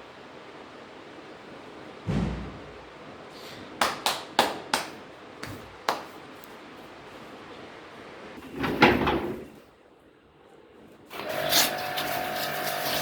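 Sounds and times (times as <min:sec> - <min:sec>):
dull thump: 0:02.1 - 0:02.6.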